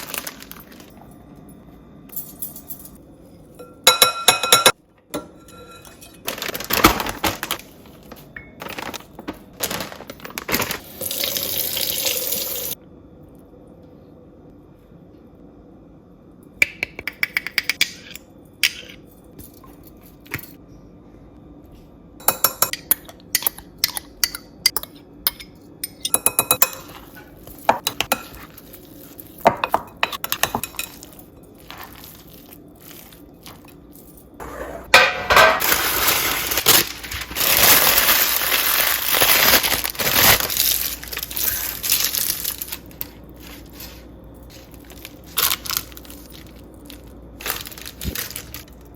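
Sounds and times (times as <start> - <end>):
utensils clinking against dishes: 2.1 - 6.8, 22.2 - 35.9.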